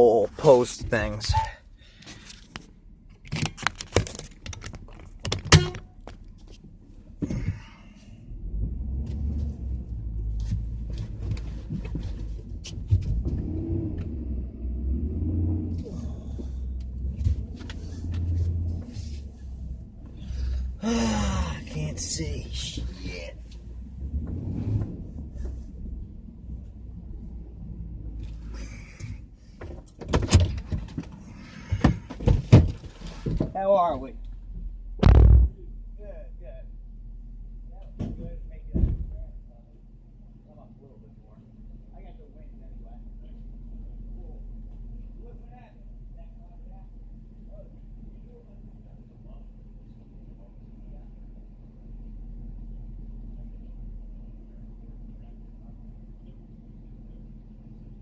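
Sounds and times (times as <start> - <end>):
vehicle engine running: 0.0 - 58.0
sharp knocks and clunks: 29.0 - 33.6, 35.0 - 35.6, 38.0 - 39.3
loud thumps and knocks: 35.0 - 35.6.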